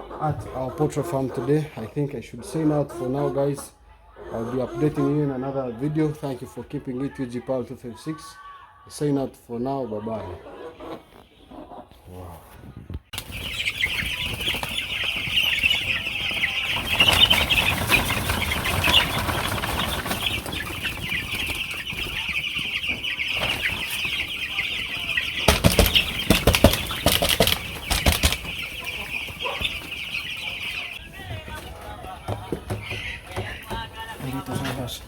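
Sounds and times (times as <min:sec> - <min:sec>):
chickens calling: 0:00.0 - 0:35.0.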